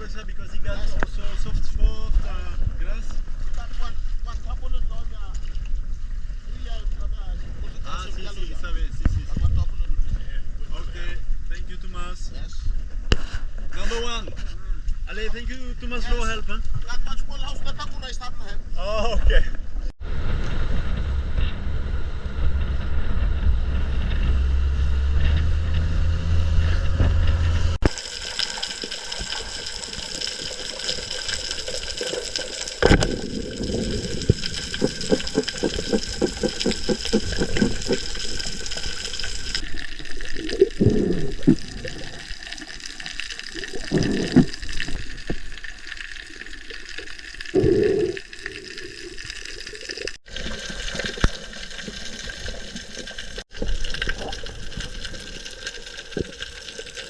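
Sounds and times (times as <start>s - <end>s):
low engine hum: 20.0s - 27.8s
water sloshing and gurgling: 26.6s - 57.0s.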